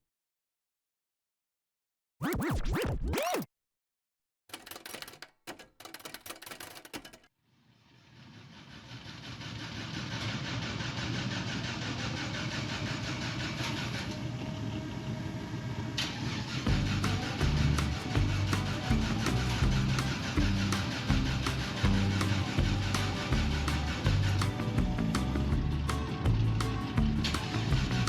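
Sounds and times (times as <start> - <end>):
vehicle engine running: 8.2 - 28.0.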